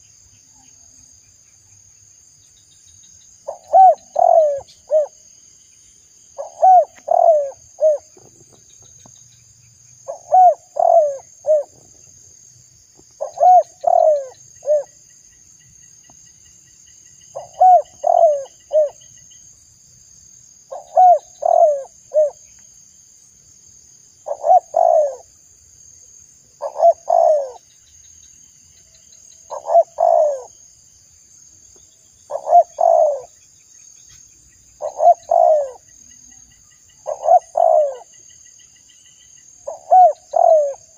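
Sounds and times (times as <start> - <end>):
dove cooing: 3.5 - 5.2, 6.4 - 8.5, 10.1 - 12.0, 13.2 - 15.0, 17.3 - 19.0, 20.7 - 22.4, 24.2 - 25.3, 26.6 - 27.6, 29.5 - 30.5, 32.3 - 33.3, 34.8 - 35.9, 37.0 - 38.1, 39.6 - 40.9.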